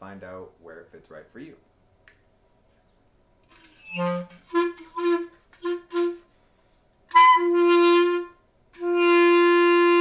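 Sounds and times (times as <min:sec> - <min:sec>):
clarinet playing low notes: 0:03.5 - 0:06.3, 0:07.1 - 0:10.0.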